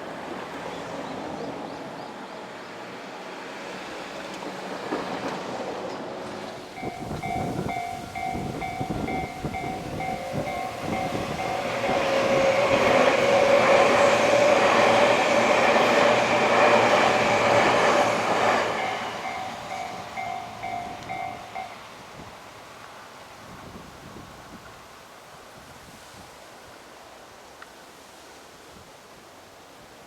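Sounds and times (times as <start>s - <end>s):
train whine: 0.0s - 23.0s
electric train passing: 0.0s - 23.3s
level crossing alarm dings: 6.8s - 12.7s, 18.8s - 21.8s.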